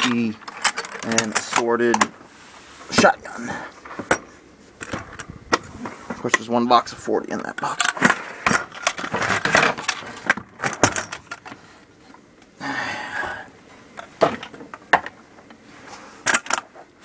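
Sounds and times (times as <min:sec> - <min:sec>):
ammunition boxes rattling: 0:00.0 - 0:02.2, 0:02.9 - 0:06.6, 0:07.3 - 0:11.7.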